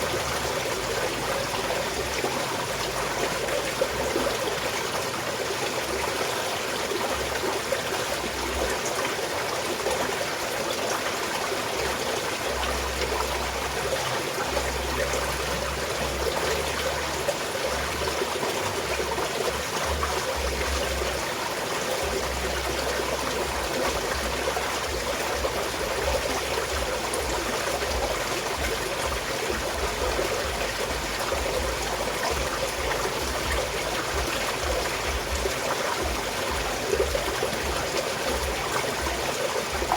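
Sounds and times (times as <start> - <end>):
mountain stream trickling: 0.0 - 39.9.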